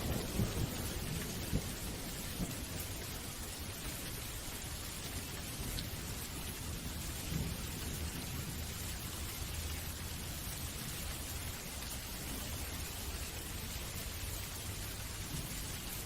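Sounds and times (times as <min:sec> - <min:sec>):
low thunder rumbling: 0:00.0 - 0:03.4, 0:05.6 - 0:08.8
steady rain: 0:00.0 - 0:16.0.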